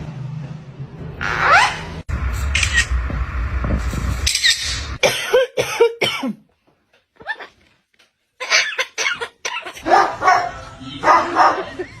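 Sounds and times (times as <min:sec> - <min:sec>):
person coughing: 0:05.0 - 0:06.4.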